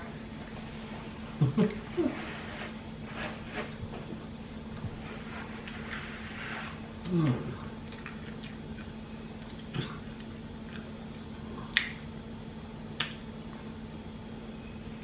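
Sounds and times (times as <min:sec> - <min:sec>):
mouth smacks while eating: 0:07.8 - 0:10.9, 0:11.6 - 0:12.0, 0:13.0 - 0:13.2.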